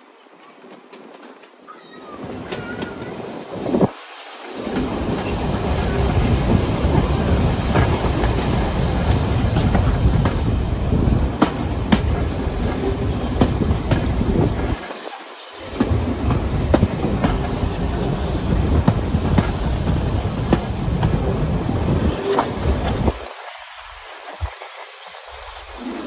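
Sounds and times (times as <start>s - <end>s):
clicks over rail joints: 0.2s - 1.7s
train wheels rumbling on track: 0.6s - 26.0s.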